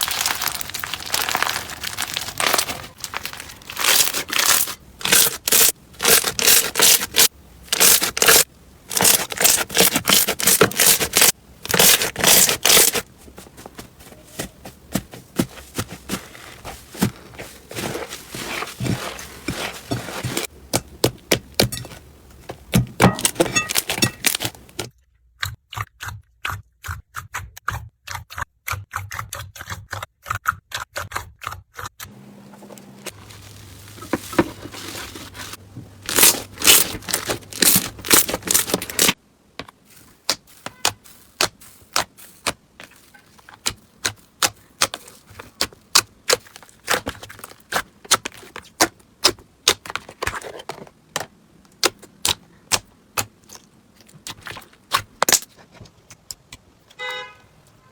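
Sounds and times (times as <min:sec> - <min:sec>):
crunchy slime crackling: 0:00.0 - 0:13.2, 0:33.1 - 0:39.2.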